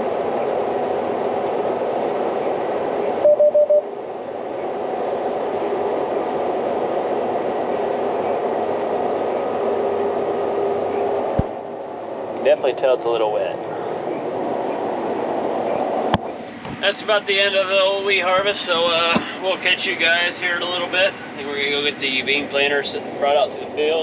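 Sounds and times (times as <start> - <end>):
combine harvester droning: 0.0 - 24.0
short beeps: 3.2 - 3.9.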